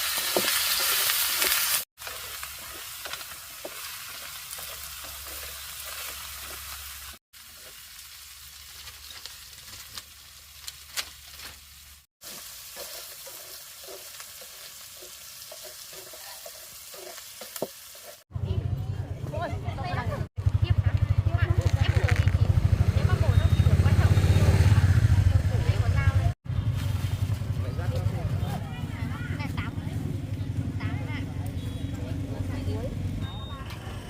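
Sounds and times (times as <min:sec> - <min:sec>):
food sizzling in hot oil: 0:00.0 - 0:18.3.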